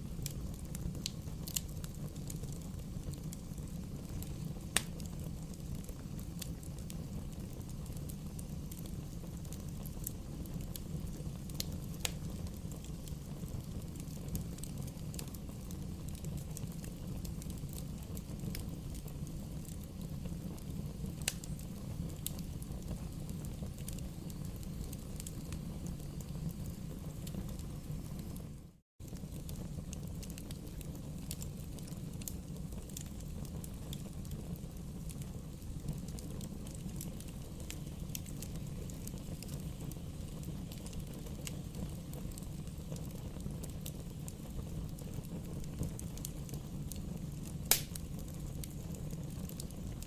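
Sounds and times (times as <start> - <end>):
bonfire crackling and popping: 0.0 - 50.0.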